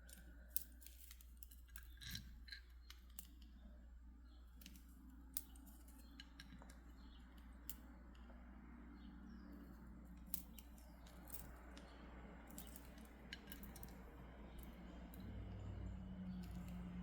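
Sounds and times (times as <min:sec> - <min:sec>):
stone beads clicking: 0:00.0 - 0:03.7, 0:10.1 - 0:17.0.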